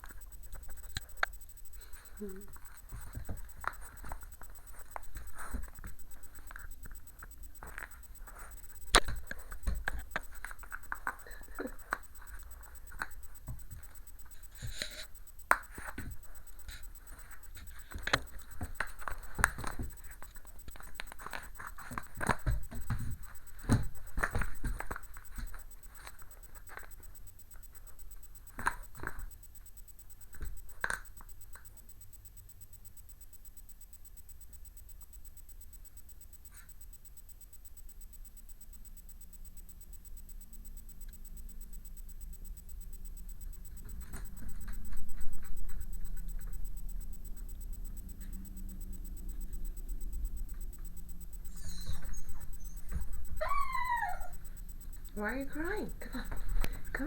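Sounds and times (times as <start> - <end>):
scratching and scraping: 0.0 - 27.1.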